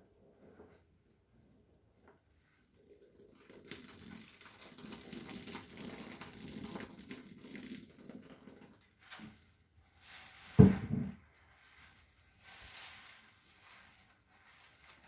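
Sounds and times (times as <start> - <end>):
wet sponge squishing: 2.4 - 9.2, 9.9 - 15.0.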